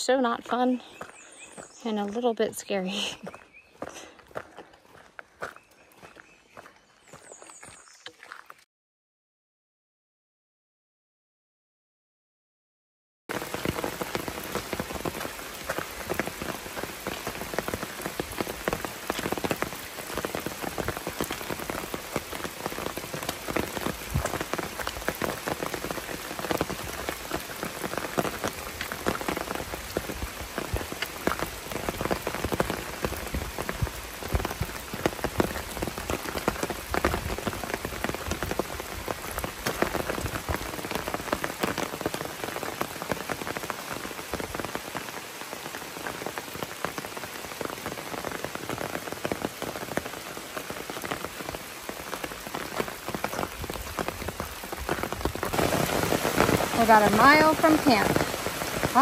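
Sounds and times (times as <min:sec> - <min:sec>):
heavy rain on forest: 0:00.0 - 0:07.8, 0:13.3 - 0:59.0.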